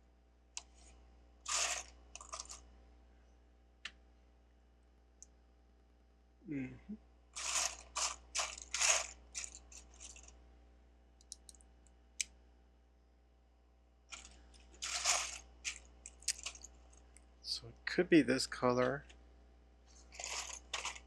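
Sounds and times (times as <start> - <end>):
plastic bricks clattering: 1.5 - 2.6, 7.4 - 10.3, 14.1 - 16.7, 20.2 - 21.0.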